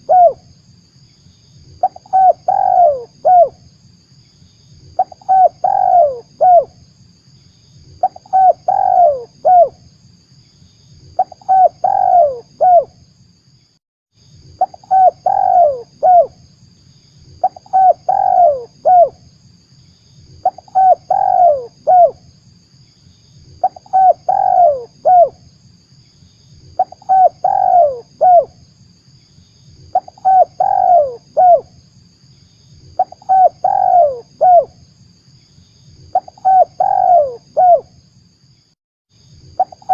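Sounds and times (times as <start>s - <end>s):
dove cooing: 0.0s - 0.4s, 1.8s - 3.6s, 5.0s - 6.7s, 8.0s - 9.8s, 11.2s - 12.9s, 14.6s - 16.4s, 17.4s - 19.2s, 20.4s - 22.2s, 23.6s - 25.4s, 26.8s - 28.6s, 29.9s - 31.7s, 33.0s - 34.8s, 36.1s - 37.9s, 39.6s - 39.9s.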